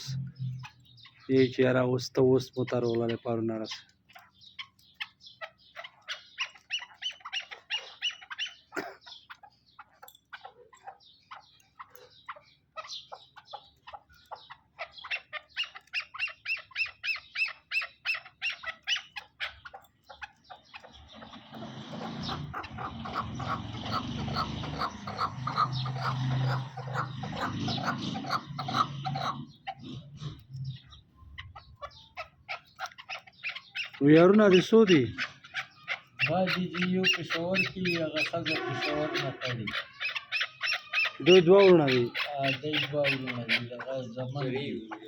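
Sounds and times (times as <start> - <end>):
low pulses: 0.0 - 1.0
birds chirping and trilling: 0.0 - 45.0.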